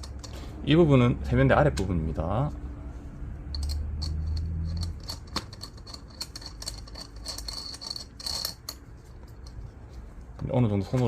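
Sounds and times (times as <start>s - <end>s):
nut turning on metal bolt: 3.5s - 8.8s.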